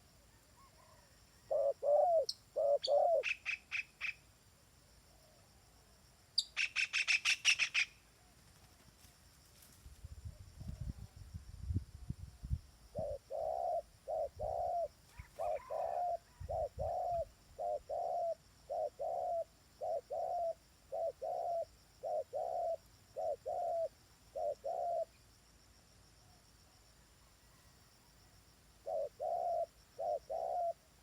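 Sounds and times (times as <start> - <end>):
bird cooing: 0.6 - 3.5, 13.0 - 25.2, 28.8 - 30.9.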